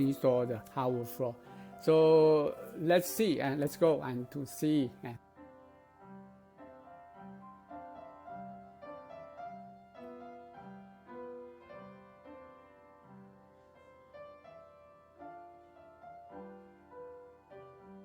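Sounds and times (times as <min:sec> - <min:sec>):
soft instrumental music: 0:00.0 - 0:18.0.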